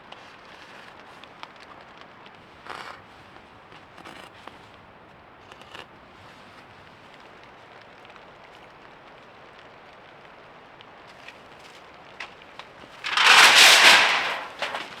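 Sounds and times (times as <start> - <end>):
raindrops pattering: 0.0 - 15.0
brief rustle: 11.2 - 15.0.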